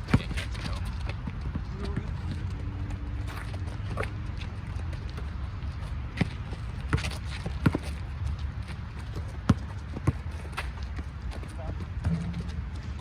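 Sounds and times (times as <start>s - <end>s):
players' footsteps: 0.0s - 13.0s
basketball bouncing on hard court: 9.2s - 10.2s.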